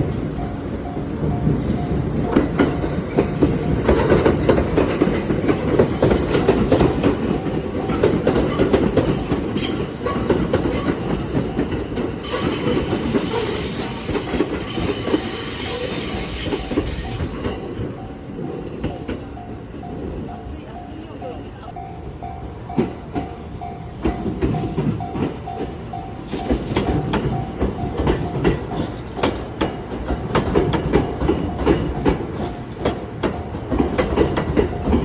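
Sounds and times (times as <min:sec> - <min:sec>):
train wheels clattering: 0:00.0 - 0:20.4, 0:22.1 - 0:35.0
level crossing warning bell: 0:00.0 - 0:29.4
high wheel squeal: 0:01.6 - 0:04.2, 0:05.2 - 0:06.8, 0:12.2 - 0:17.8.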